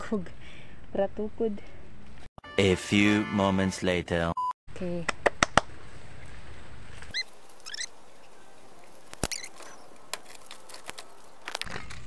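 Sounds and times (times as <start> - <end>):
bird chirping: 7.0 - 10.0.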